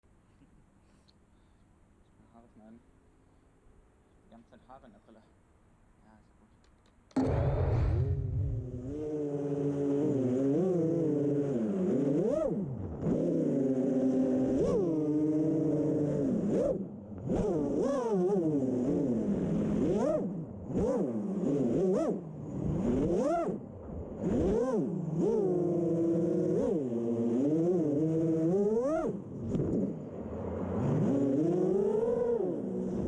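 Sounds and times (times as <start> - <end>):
quadcopter motors whining: 24.3 - 29.7, 31.1 - 33.0.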